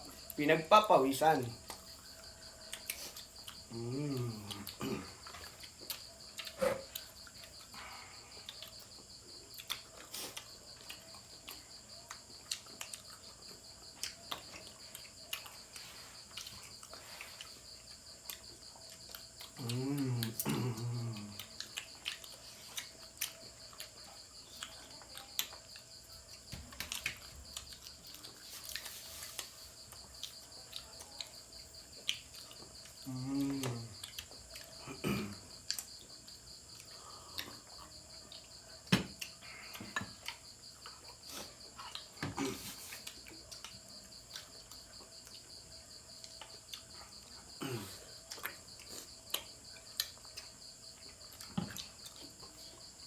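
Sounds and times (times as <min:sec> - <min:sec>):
crickets chirping: 0:00.0 - 0:53.0
low vocal sound: 0:03.7 - 0:05.2, 0:19.6 - 0:21.5, 0:33.0 - 0:34.0.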